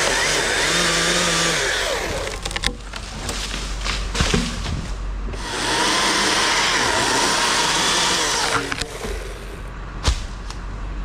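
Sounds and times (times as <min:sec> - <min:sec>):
chainsaw revving: 0:00.0 - 0:02.6, 0:05.4 - 0:09.7.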